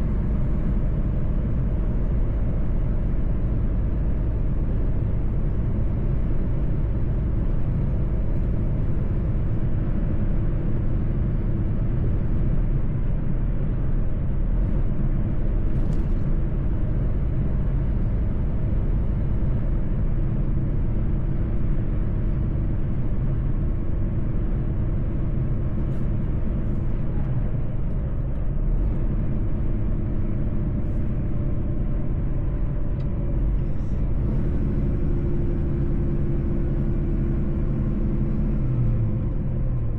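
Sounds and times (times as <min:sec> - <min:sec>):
road rumble: 0:00.0 - 0:39.9
truck engine drone: 0:00.0 - 0:39.9.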